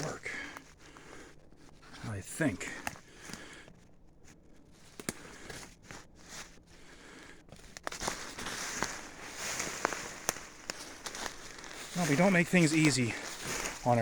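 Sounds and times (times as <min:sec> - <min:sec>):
twigs snapping and clicking: 0:02.7 - 0:03.8, 0:04.8 - 0:05.8, 0:07.5 - 0:13.8
footsteps on dirt slope: 0:07.6 - 0:14.0
rustling brush: 0:07.8 - 0:14.0.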